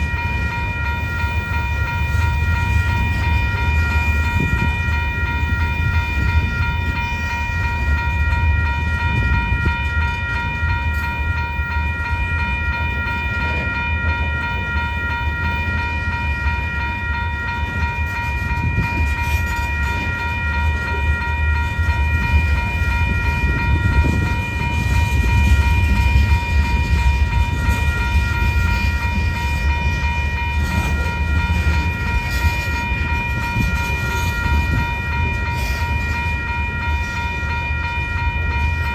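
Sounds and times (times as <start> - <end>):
high ringing tones: 0.0 - 38.9
train rumbling past: 0.0 - 38.9.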